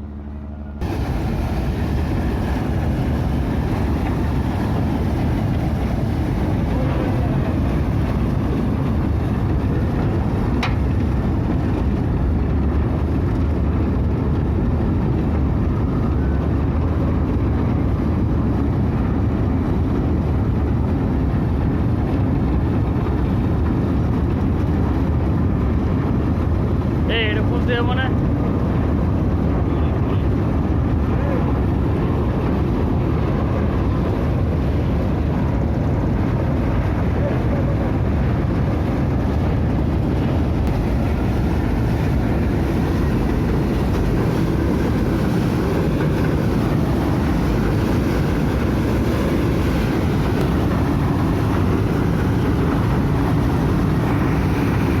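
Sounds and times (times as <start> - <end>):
ferry engine low rumble: 0.0 - 55.0
faint voices: 6.6 - 7.9.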